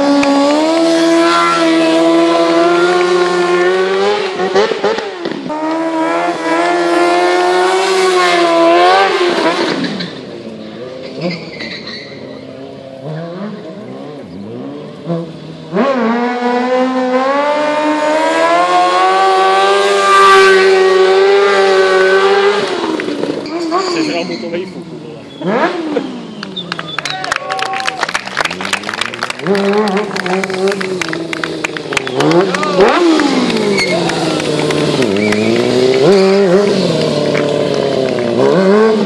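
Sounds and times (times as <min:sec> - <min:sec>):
motorcycle engine revving: 0:00.0 - 0:27.0, 0:28.4 - 0:39.0.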